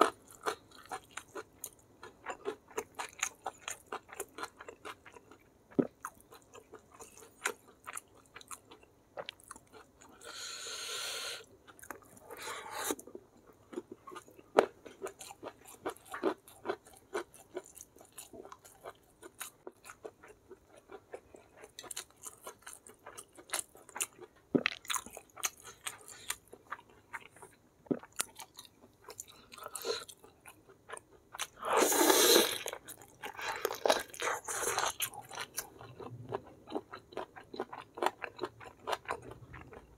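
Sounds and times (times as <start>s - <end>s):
person chewing and biting food: 13.7s - 39.9s.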